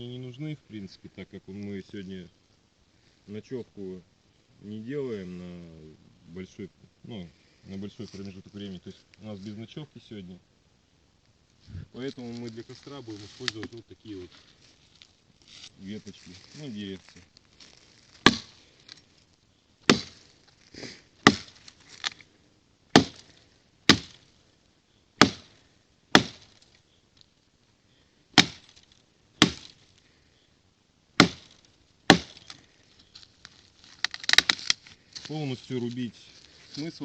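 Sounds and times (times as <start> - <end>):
wood crackling: 0.0 - 37.0
blade chopping into wood: 18.2 - 18.5, 19.8 - 20.2, 21.2 - 21.6, 23.0 - 23.3, 23.9 - 24.2, 25.2 - 25.5, 26.2 - 26.6, 28.4 - 28.7, 29.4 - 29.8, 31.2 - 32.6.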